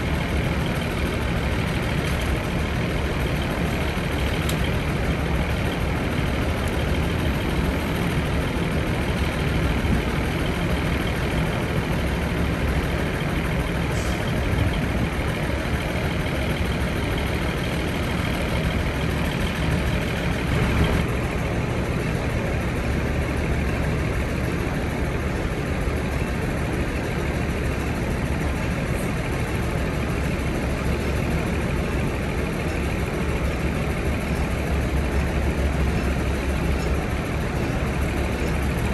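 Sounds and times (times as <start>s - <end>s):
diesel engine drone: 0.0s - 38.9s.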